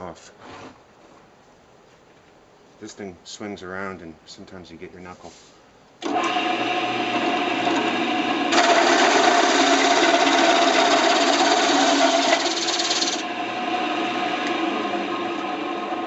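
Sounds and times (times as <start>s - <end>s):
circle cutter cutting noise: 6.0s - 16.0s
drill press motor hum: 6.0s - 16.0s.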